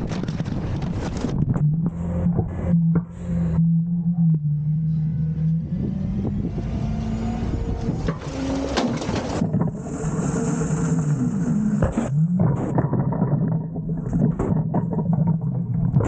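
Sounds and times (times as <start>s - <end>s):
garbage truck engine running: 4.8s - 12.2s.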